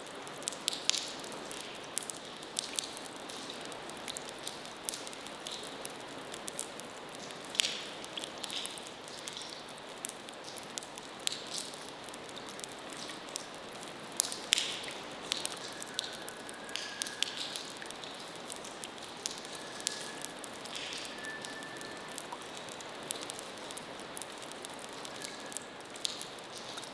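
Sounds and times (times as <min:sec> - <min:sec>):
small sharp clicks and ticks: 0:00.0 - 0:26.9
faint thin high tone: 0:19.6 - 0:22.2.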